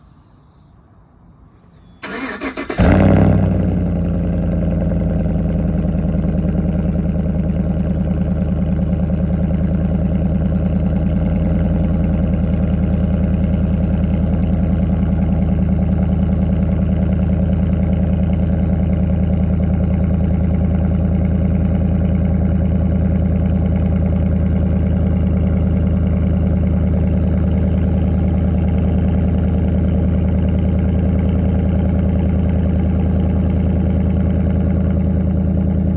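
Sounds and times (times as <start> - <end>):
car engine starting and idling: 1.7 - 35.9.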